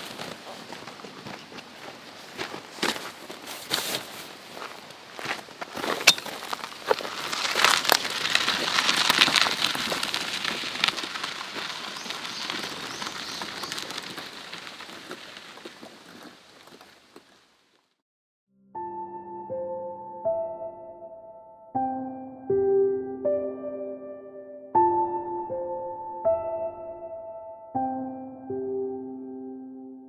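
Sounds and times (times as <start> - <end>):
campfire crackling and popping: 4.6 - 17.6.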